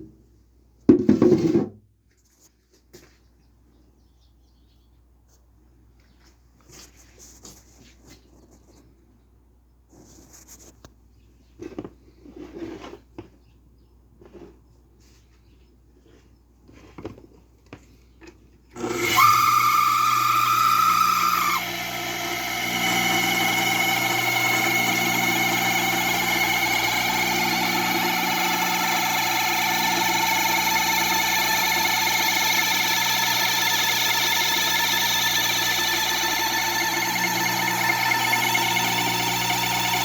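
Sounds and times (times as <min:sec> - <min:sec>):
pump motor whining: 0:18.7 - 0:40.0.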